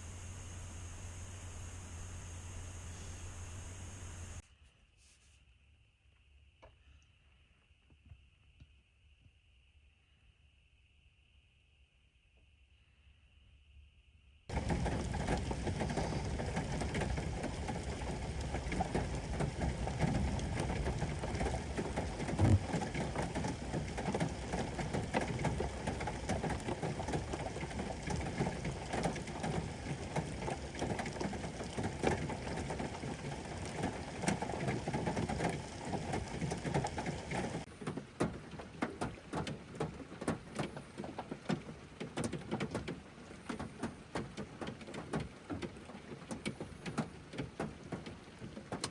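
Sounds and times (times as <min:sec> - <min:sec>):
rain falling: 0:14.5 - 0:48.9.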